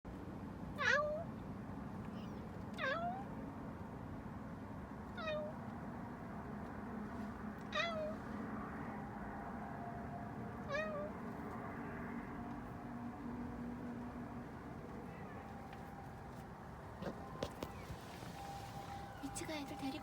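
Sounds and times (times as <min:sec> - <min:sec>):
cat meowing: 0:00.8 - 0:01.3, 0:02.1 - 0:03.3, 0:05.1 - 0:05.6, 0:07.7 - 0:08.2, 0:10.6 - 0:11.2.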